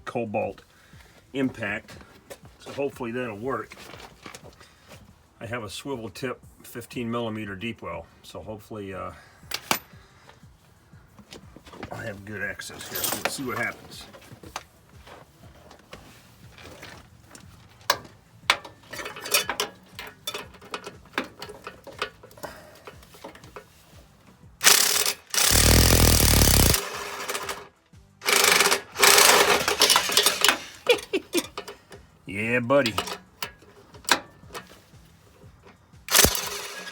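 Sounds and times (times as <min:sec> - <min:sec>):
tools clicking and knocking: 0:09.5 - 0:10.0, 0:16.6 - 0:23.7, 0:24.6 - 0:32.0, 0:32.8 - 0:34.8, 0:35.6 - 0:36.9
impact wrench hammering: 0:24.6 - 0:27.5, 0:36.1 - 0:36.9.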